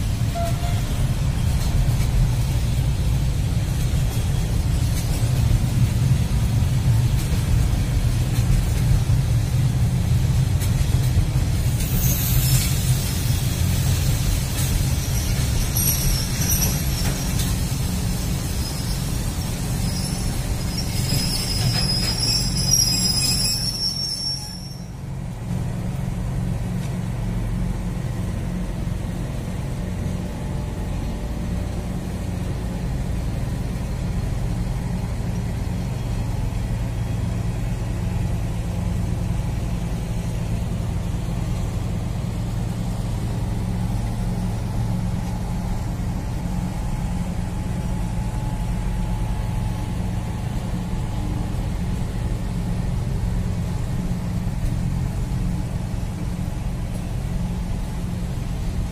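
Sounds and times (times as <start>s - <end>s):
freight train rumbling past: 0.0s - 58.9s
high-pitched wheel squeal: 15.2s - 17.3s, 19.7s - 25.0s.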